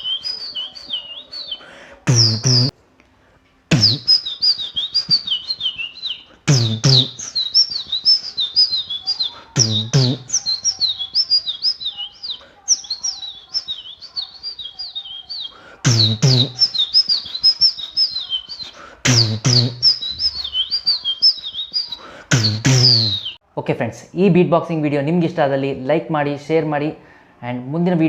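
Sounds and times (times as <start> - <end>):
mouth whistled bird chirps: 0.0 - 2.7, 3.7 - 23.4
beatboxed bass hits: 2.1 - 2.7, 3.7 - 4.2, 6.5 - 7.3, 9.6 - 10.3, 15.8 - 16.8, 19.0 - 20.1, 22.3 - 23.2.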